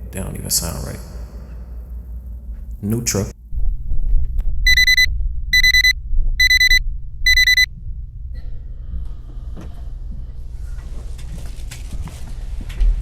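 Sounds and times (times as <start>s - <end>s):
high electronic beeps: 4.7s - 7.7s.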